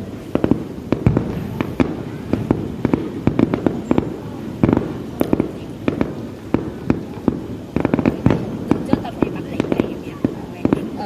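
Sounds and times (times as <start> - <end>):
low rumble: 0.0 - 7.6
fireworks bangs and pops: 0.0 - 11.0.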